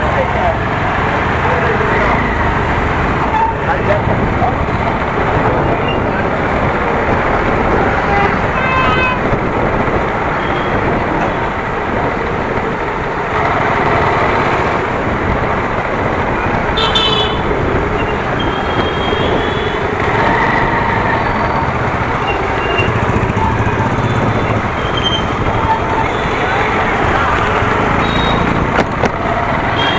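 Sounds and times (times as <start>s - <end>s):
wind and road noise: 0.0s - 29.9s.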